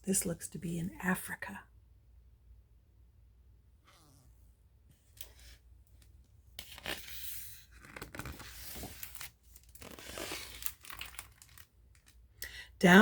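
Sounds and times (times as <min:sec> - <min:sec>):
book pages rustling and turning: 0:05.0 - 0:12.2.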